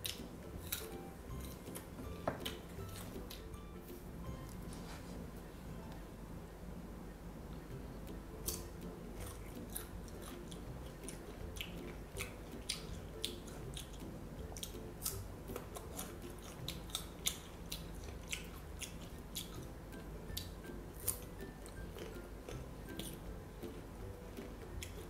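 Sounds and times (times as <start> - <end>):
crunchy chewing of mango: 0.0 - 3.6, 8.4 - 25.0.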